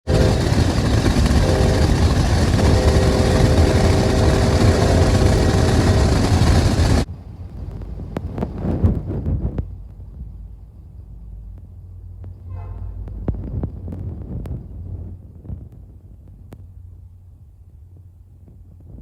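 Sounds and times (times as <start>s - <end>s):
diesel locomotive rumble: 0.0s - 19.0s
steady tones: 0.1s - 8.1s.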